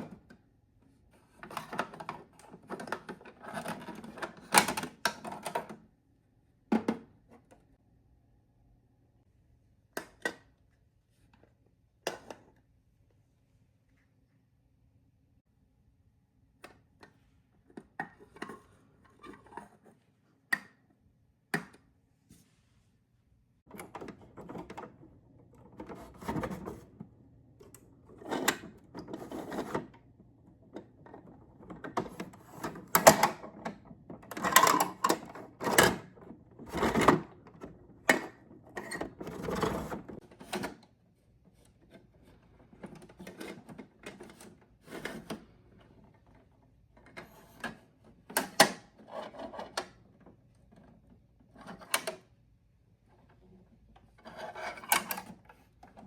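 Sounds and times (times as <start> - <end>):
plastic toy truck rattling: 30.8 - 40.8.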